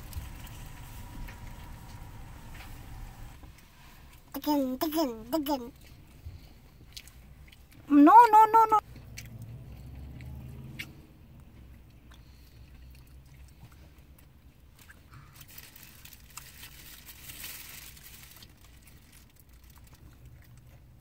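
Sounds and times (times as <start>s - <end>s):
low car interior hum: 0.0s - 21.0s
baby chewing: 3.5s - 7.9s, 8.8s - 21.0s
soft rustle: 12.5s - 21.0s.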